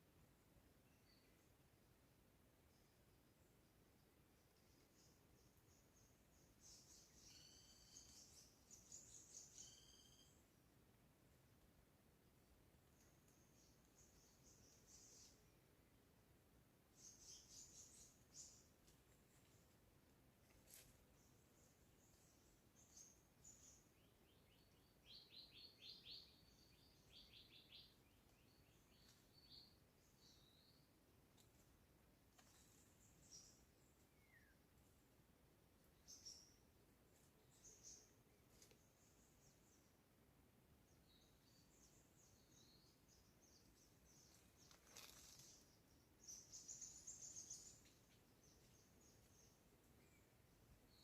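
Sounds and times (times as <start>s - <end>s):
faint birdsong: 0.0s - 51.0s
thin bird chirps: 4.0s - 10.5s, 41.1s - 51.0s
soft click or rustle: 32.3s - 32.9s, 44.5s - 45.6s.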